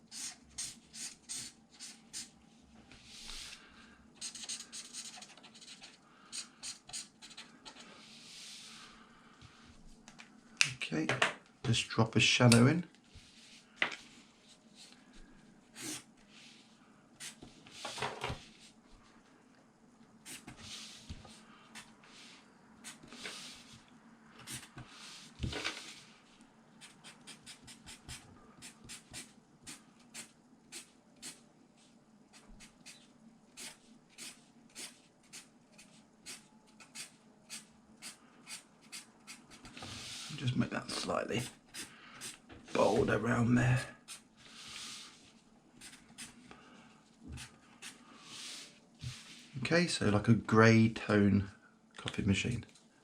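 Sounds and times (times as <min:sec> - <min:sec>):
marker scratching on paper: 0:04.2 - 0:08.7, 0:26.8 - 0:31.4, 0:32.3 - 0:40.3.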